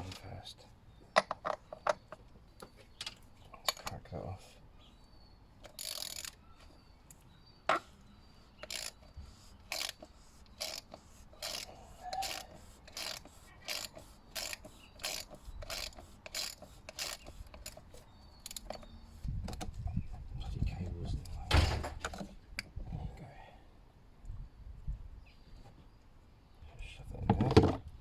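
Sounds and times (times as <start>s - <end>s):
socket ratchet clicking: 5.6s - 6.4s, 8.6s - 9.1s, 9.7s - 17.8s, 18.4s - 18.8s.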